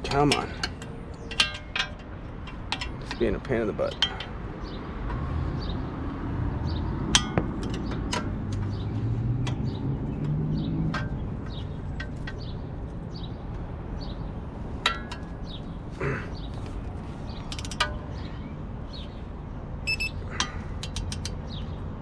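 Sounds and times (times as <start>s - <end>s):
metal tools clinking on bolts: 0.0s - 4.8s, 7.1s - 13.1s, 14.8s - 15.6s, 17.3s - 18.3s, 19.9s - 21.7s.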